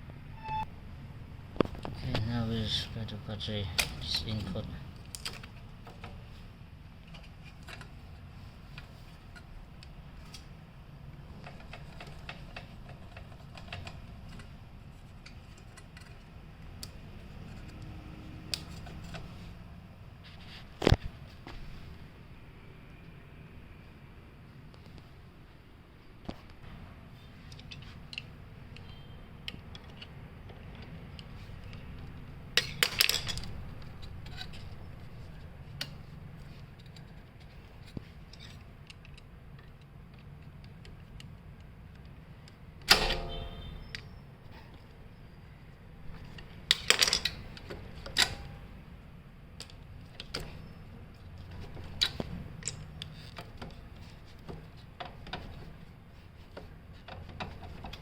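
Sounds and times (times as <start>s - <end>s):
tools and metal parts clinking: 30.8s - 36.0s, 46.1s - 48.6s, 49.6s - 55.8s.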